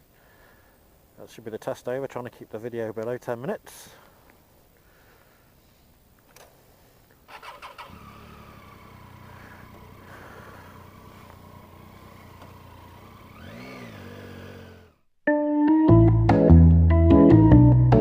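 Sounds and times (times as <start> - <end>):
motorcycle engine idling: 7.3 - 15.0.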